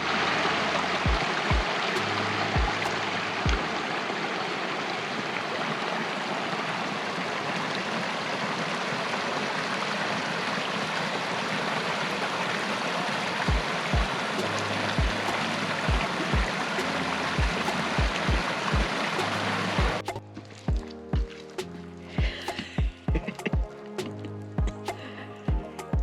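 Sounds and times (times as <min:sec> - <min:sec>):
creek water rushing: 0:00.0 - 0:26.0
low thumps: 0:02.6 - 0:02.9, 0:24.6 - 0:24.9.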